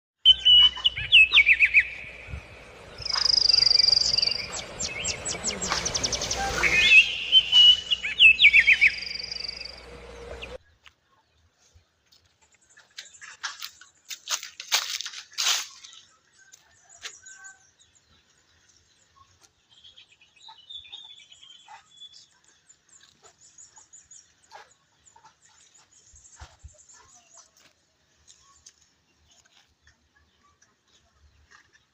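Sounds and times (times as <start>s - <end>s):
songbird singing: 0.2s - 10.8s, 15.8s - 29.5s.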